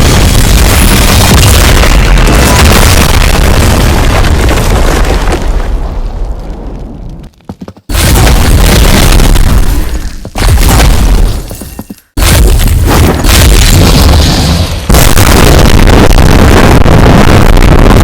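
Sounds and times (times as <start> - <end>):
loud distorted booming noise: 0.0 - 4.7, 7.9 - 11.3, 12.2 - 18.0.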